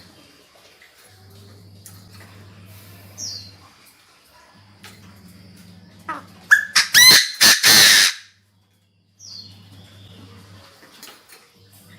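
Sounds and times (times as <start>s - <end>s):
faint electrical hum: 0.0s - 11.9s
bird giving harsh call: 6.1s - 8.3s.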